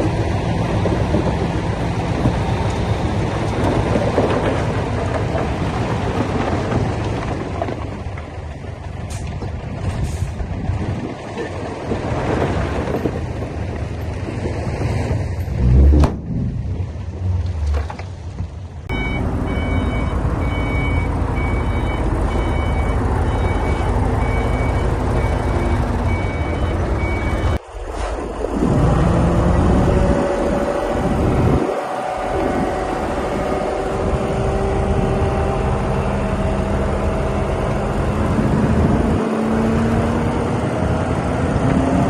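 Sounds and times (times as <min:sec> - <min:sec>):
reversing alarm beeping: 0:18.9 - 0:27.6
diesel engine running hard: 0:28.6 - 0:42.0.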